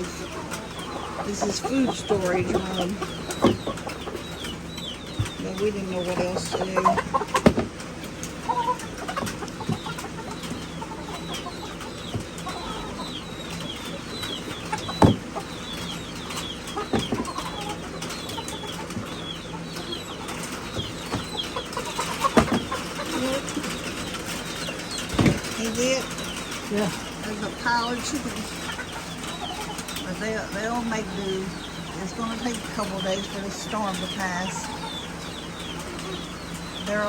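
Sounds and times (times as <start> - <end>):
wings flapping: 0.0 - 30.1
chickens clucking: 0.0 - 37.0
chicks peeping: 0.0 - 37.0
knocks: 14.9 - 15.3, 25.1 - 25.6.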